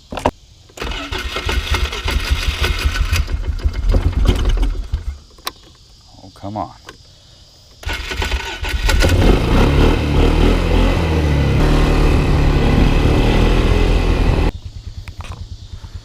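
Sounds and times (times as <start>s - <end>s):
quad bike engine starting and running: 0.8s - 5.1s, 7.8s - 15.6s.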